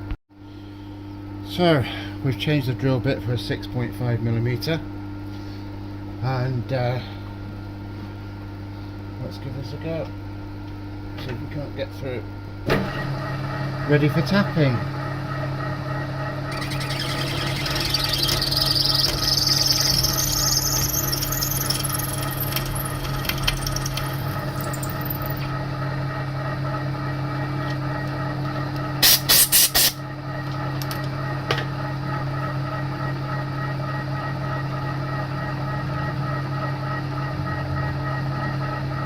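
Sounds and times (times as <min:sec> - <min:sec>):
drill bit squealing into metal: 0:16.5 - 0:25.4
milling machine spindle running: 0:16.5 - 0:25.5.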